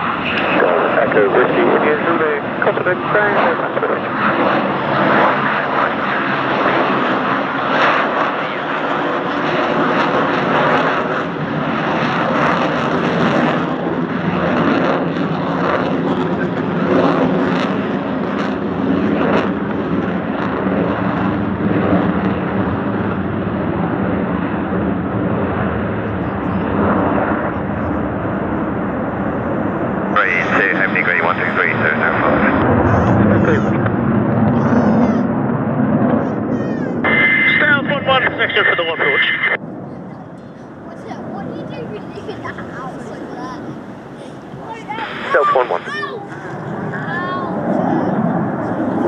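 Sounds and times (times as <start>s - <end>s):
aircraft engine drone: 0.0s - 49.0s.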